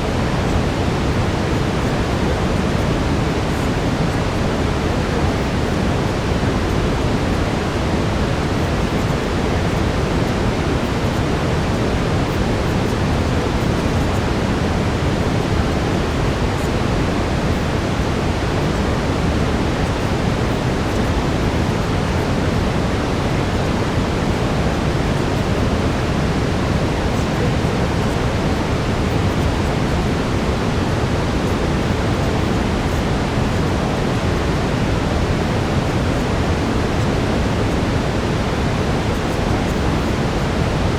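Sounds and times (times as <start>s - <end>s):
brown noise hiss: 0.0s - 40.9s.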